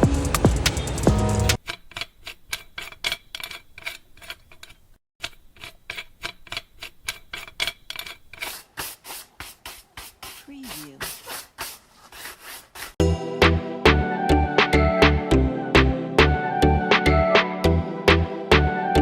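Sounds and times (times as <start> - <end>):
music: 0.0 - 1.6, 13.0 - 19.0.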